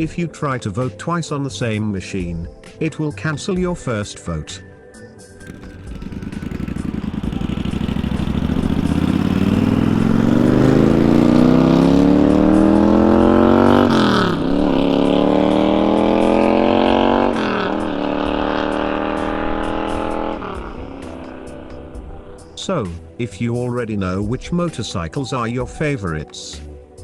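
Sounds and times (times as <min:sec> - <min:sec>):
motorcycle engine accelerating: 0:05.4 - 0:22.6.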